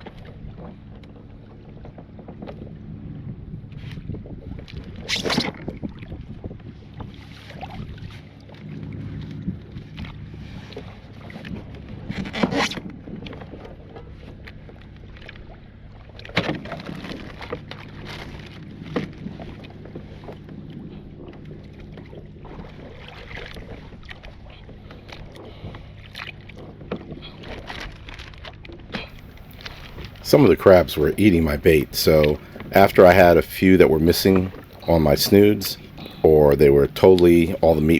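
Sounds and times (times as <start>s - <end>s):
wind on microphone: 3.2s - 8.2s, 29.2s - 37.6s
steady low hum: 29.2s - 37.9s.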